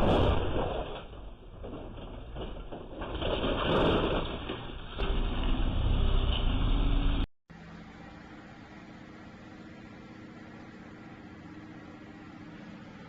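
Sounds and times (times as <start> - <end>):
muffled vehicle engine drone: 5.0 - 13.0.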